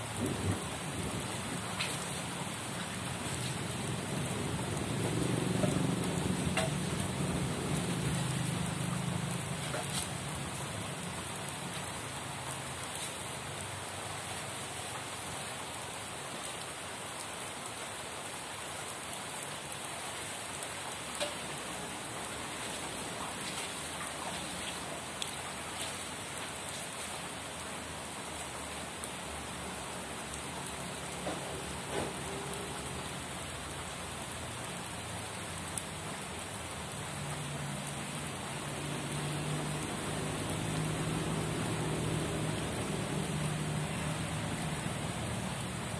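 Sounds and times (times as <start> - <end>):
steady rain falling: 0.0 - 45.9
single raindrops ticking: 2.8 - 12.0.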